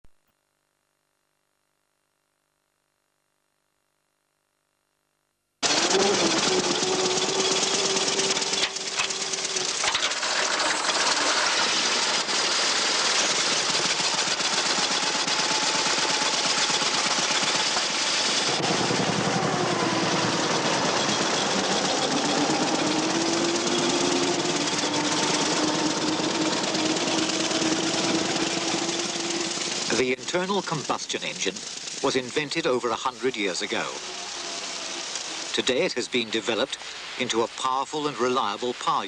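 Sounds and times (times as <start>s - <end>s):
car engine clattering: 5.6s - 35.6s.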